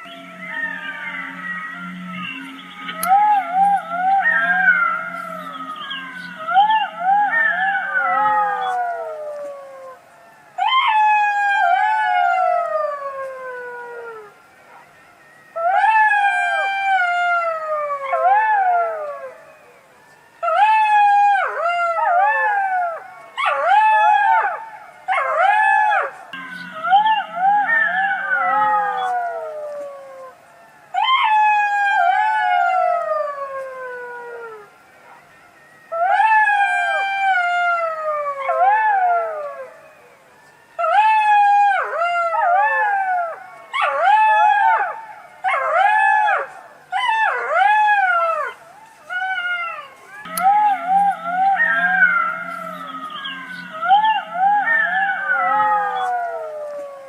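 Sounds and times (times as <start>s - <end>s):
fox wailing calls: 0.0s - 10.0s, 40.8s - 57.0s.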